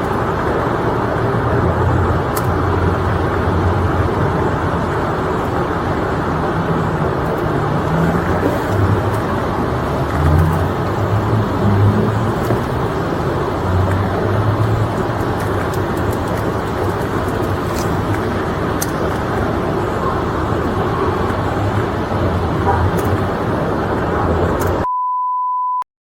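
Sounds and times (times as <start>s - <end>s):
motor vehicle rumble: 0.0s - 24.9s.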